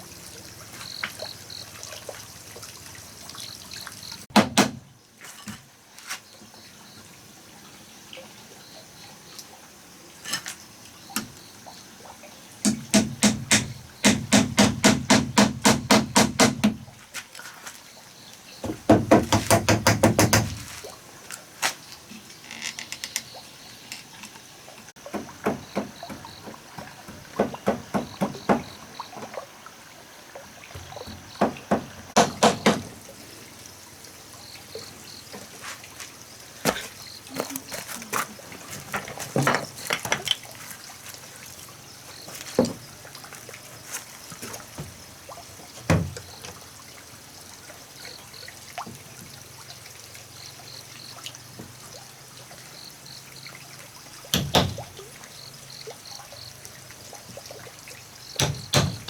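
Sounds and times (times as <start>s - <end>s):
sharp knocks and taps: 12.6s - 16.8s, 18.6s - 20.6s, 25.1s - 28.7s, 30.8s - 32.9s, 58.4s - 59.0s.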